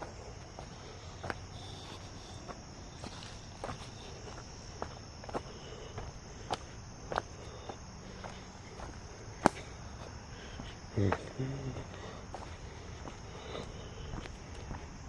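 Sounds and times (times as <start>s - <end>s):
insects chirring: 0.0s - 15.0s
footsteps on dry leaves: 0.6s - 9.0s
low voice: 10.9s - 12.0s.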